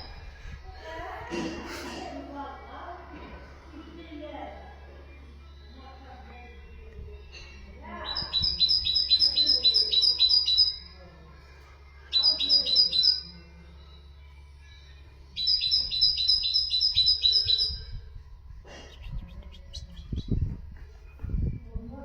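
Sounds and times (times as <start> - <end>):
songbird singing high notes: 8.0 - 10.8, 15.4 - 17.9.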